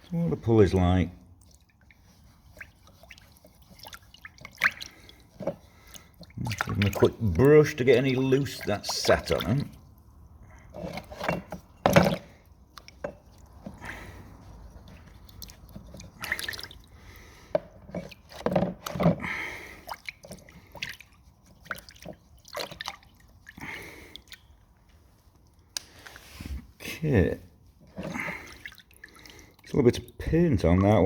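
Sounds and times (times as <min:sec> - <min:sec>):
brush scrubbing: 0:00.0 - 0:19.1, 0:19.8 - 0:23.6
liquid dripping and splashing: 0:00.7 - 0:26.3, 0:27.6 - 0:31.0.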